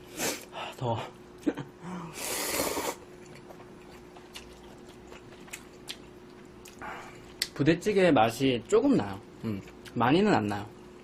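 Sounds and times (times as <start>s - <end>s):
chewing clicks and mouth noises: 3.1s - 7.6s, 9.4s - 10.6s.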